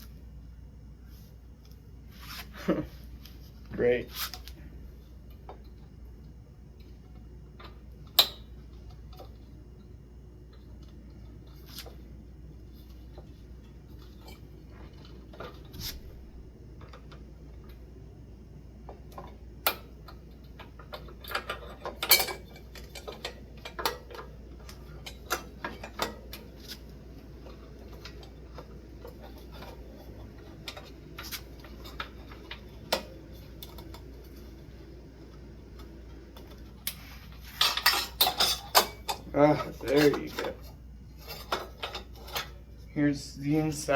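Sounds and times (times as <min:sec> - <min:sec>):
faint low hum: 0:00.0 - 0:43.9
metal parts clicking and knocking: 0:19.1 - 0:26.8, 0:36.4 - 0:42.6.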